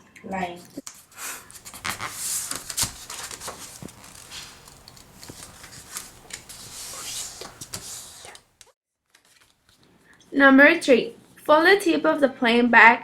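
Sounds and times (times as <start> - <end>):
paper folding and rustling: 0.8 - 9.9.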